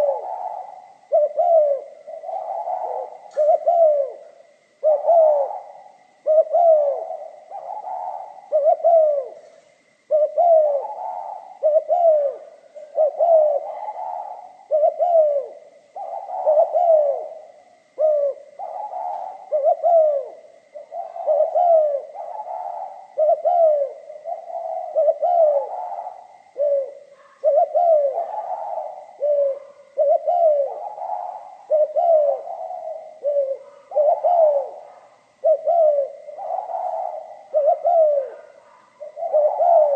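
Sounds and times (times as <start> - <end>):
dove cooing: 0.0 - 39.9
faint steady high tone: 0.0 - 39.9.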